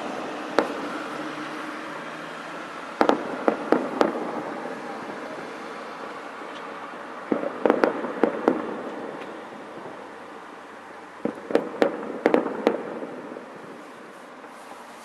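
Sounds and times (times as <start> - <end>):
fireworks bangs: 0.0 - 1.8, 2.9 - 10.2, 11.2 - 14.9.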